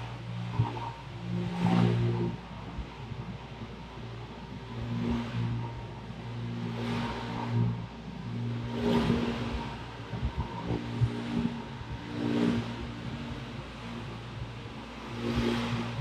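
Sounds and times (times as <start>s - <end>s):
electric sanding machine on wooden deck: 7.0s - 16.0s.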